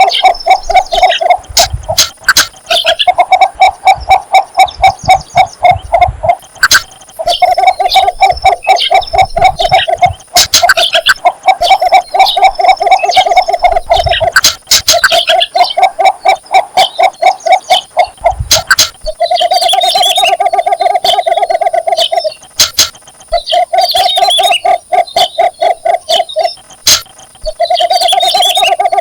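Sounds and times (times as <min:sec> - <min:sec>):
bittern calling rapid low notes: 0:00.0 - 0:29.0.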